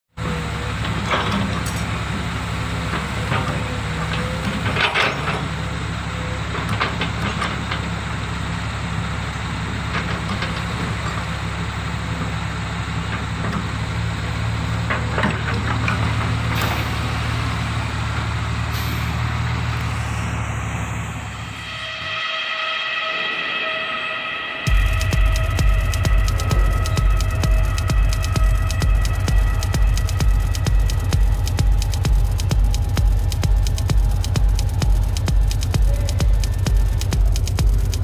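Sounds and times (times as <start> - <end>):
diesel engine running: 0.1 - 23.1, 24.5 - 38.0
knocks and clanks: 2.9 - 5.6, 14.8 - 17.2.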